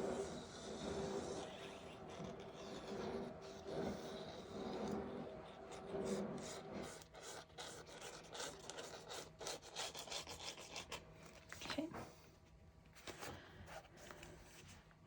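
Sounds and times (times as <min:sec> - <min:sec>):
rubbing strokes on paper: 0:00.0 - 0:11.0.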